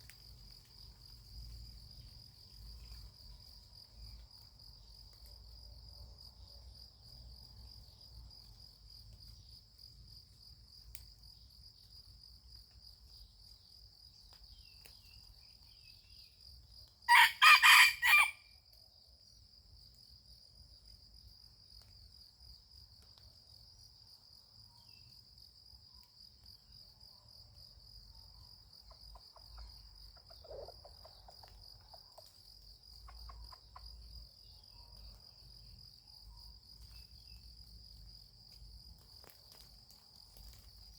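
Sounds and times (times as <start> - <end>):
insect trill: 0.0 - 40.9
rooster crowing: 17.1 - 18.5.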